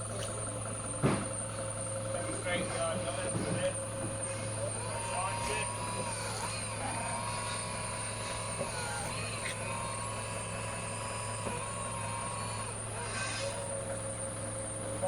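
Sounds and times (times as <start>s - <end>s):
electric forklift humming and whining: 0.0s - 15.0s.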